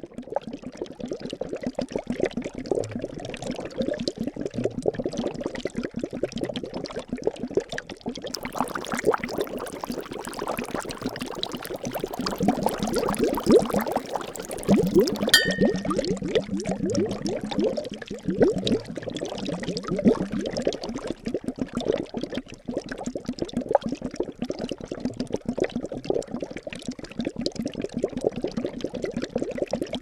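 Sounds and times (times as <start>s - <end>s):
liquid bubbling and gurgling: 8.3s - 16.0s
brief ringing ping: 15.3s - 16.0s.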